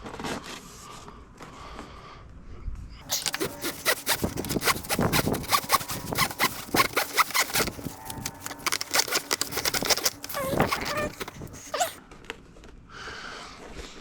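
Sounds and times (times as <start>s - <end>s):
cable rustling and scraping: 3.0s - 12.0s.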